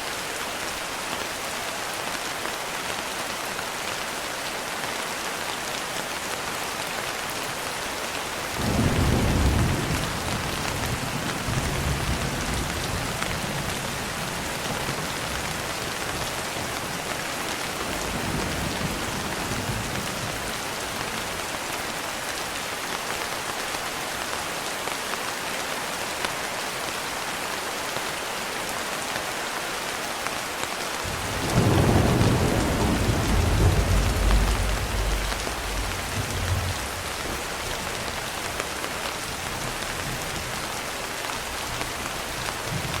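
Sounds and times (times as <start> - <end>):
steady rain: 0.0 - 43.0
thunder rumbling: 8.6 - 15.6, 31.0 - 38.2.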